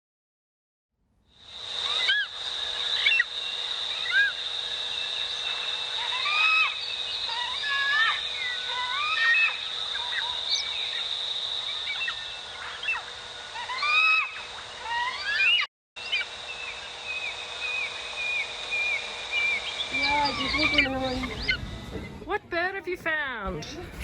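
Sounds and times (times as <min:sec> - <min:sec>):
birds whistling calls: 0:01.8 - 0:02.4, 0:03.0 - 0:22.2
steady high thin tone: 0:16.0 - 0:24.0.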